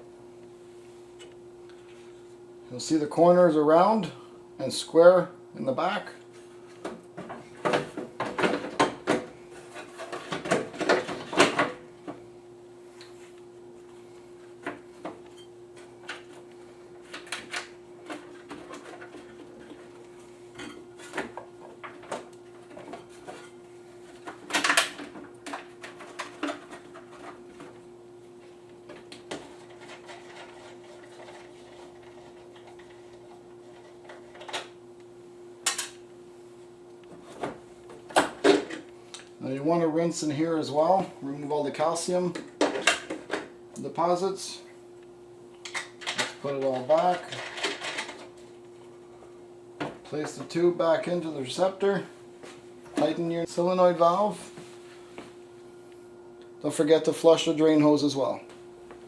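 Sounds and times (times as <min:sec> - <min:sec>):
humidifier parts clattering: 0:05.7 - 0:12.3, 0:14.4 - 0:34.8, 0:35.6 - 0:36.1, 0:37.0 - 0:44.8, 0:45.5 - 0:55.3.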